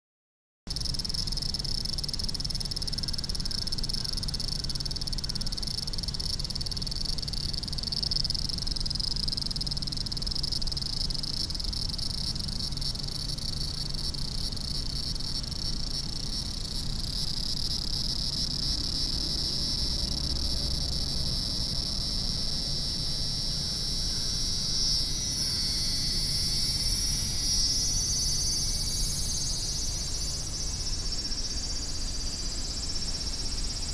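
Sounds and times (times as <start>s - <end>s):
cicadas droning: 0.7s - 33.9s.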